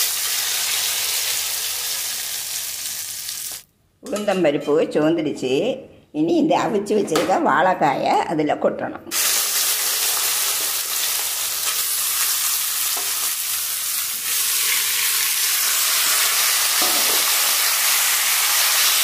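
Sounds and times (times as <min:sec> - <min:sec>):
slices frying in hot oil: 0:00.0 - 0:03.6, 0:09.1 - 0:19.0.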